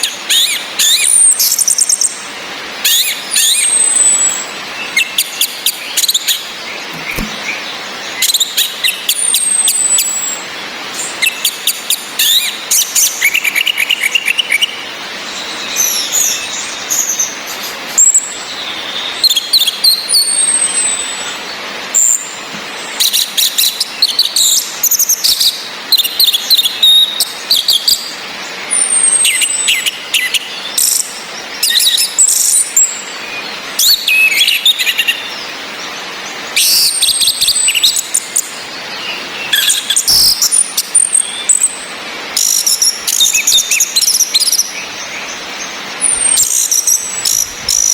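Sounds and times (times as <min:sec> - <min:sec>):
rain hissing: 0:00.0 - 0:11.5, 0:37.8 - 0:47.9.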